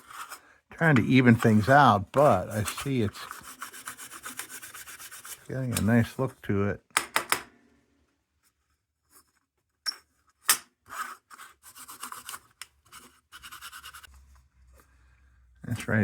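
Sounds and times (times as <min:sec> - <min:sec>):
steel wool scratching on tin: 0:01.1 - 0:05.8.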